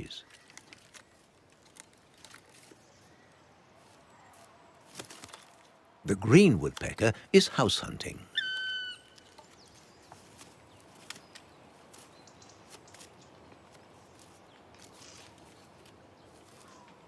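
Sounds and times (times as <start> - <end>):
faint bird chirp: 8.3 - 17.0.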